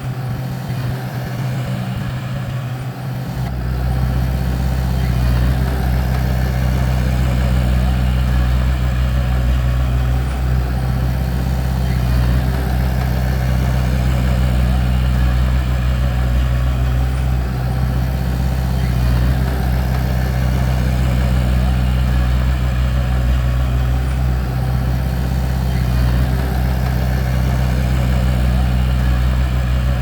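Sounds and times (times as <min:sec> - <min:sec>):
bulldozer diesel engine running: 0:00.0 - 0:30.0.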